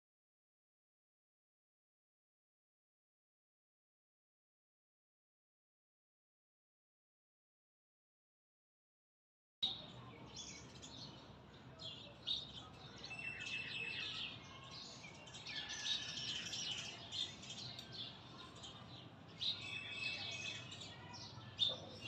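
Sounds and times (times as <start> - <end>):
birds chirping faintly: 9.6 - 22.0
whistled bird notes: 11.8 - 18.7, 19.4 - 22.0.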